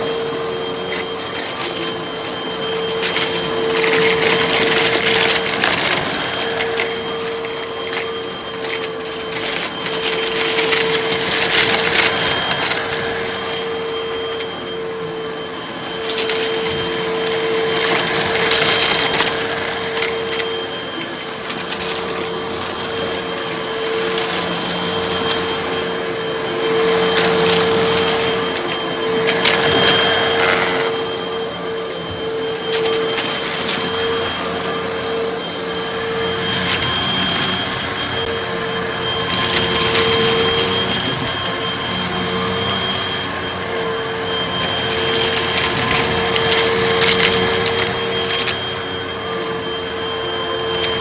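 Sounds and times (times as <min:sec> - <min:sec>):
vacuum cleaner motor whine: 0:00.0 - 0:51.0.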